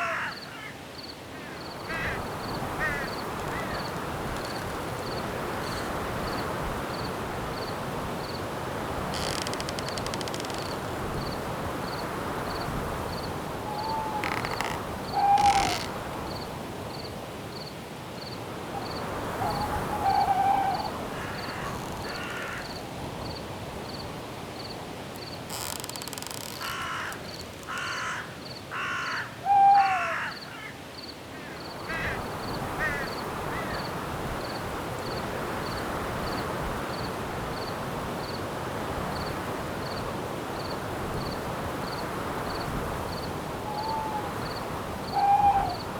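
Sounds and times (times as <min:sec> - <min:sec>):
wind: 0:00.0 - 0:45.9
insect chirping: 0:00.3 - 0:08.4, 0:09.1 - 0:28.6
harsh bird calls: 0:13.7 - 0:15.9.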